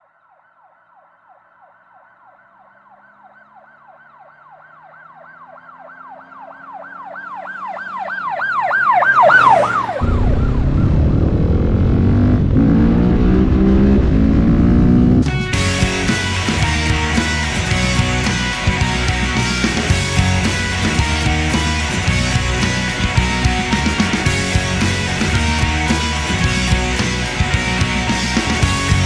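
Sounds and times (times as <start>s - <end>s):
electronic siren yelping: 0.3s - 11.4s
loud low rough sound: 10.0s - 29.0s.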